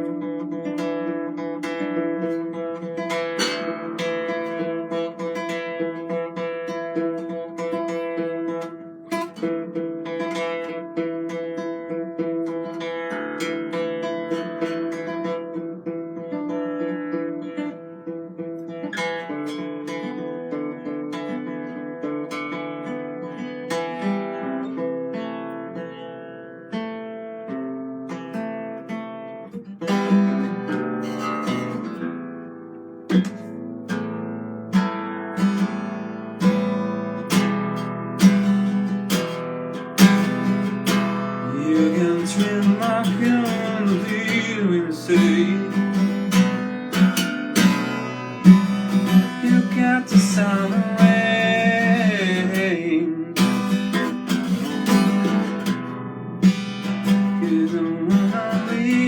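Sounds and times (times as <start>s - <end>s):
acoustic guitar: 0.0s - 59.0s
person singing wordlessly: 41.4s - 46.6s, 48.7s - 54.0s, 57.0s - 59.0s.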